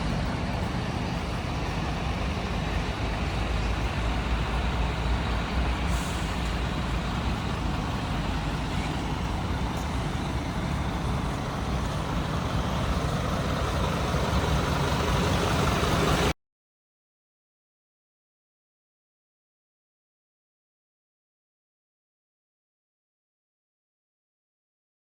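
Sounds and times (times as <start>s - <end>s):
diesel truck engine idling: 0.0s - 16.3s.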